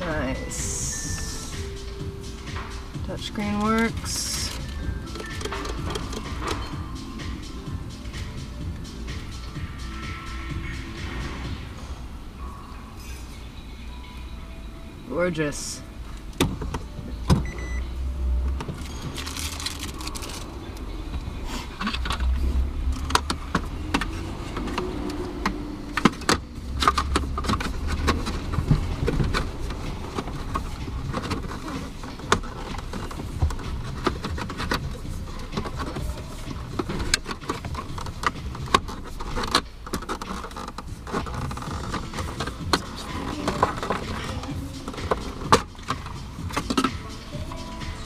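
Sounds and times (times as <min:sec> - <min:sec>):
plastic parts clicking and knocking: 0:03.6 - 0:06.8, 0:21.8 - 0:47.1.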